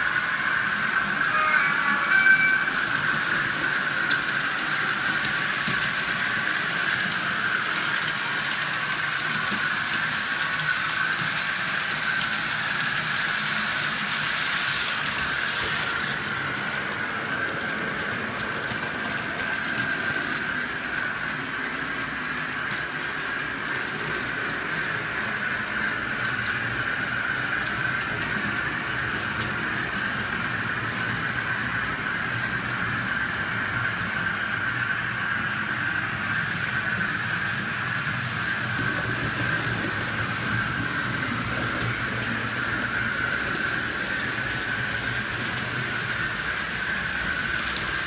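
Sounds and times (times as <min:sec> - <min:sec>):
model train running on track: 0:00.0 - 0:48.0.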